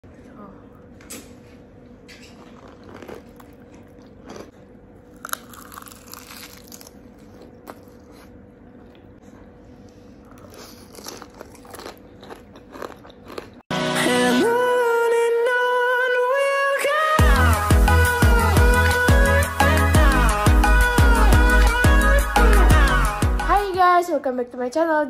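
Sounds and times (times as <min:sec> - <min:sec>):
crunching bites and chewing: 0:02.2 - 0:13.6
music: 0:13.7 - 0:24.1.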